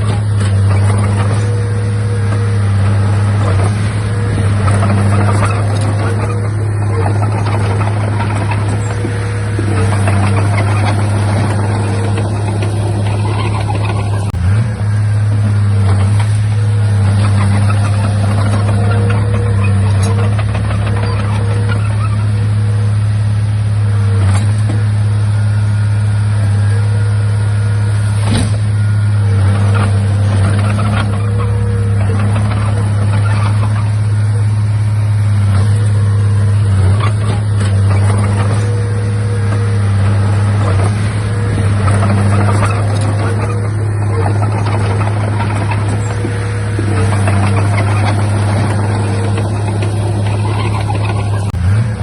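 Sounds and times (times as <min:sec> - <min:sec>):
bulldozer diesel engine running: 0:00.0 - 0:52.0
metal clanks and rattles: 0:02.3 - 0:14.4, 0:35.5 - 0:51.6.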